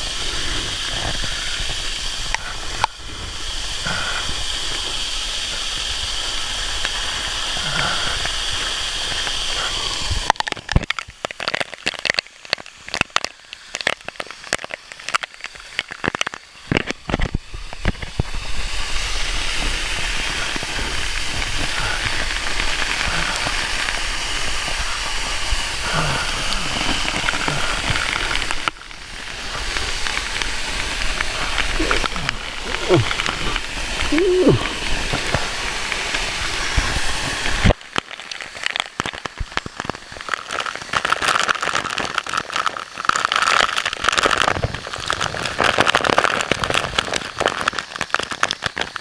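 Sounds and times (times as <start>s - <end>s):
waterfall rushing: 17.0s - 41.0s.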